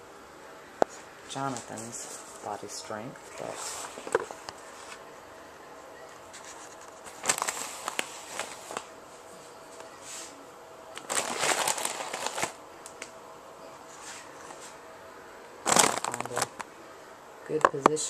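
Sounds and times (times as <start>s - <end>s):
grain mill crunching grain: 11.0s - 12.6s, 15.6s - 16.6s.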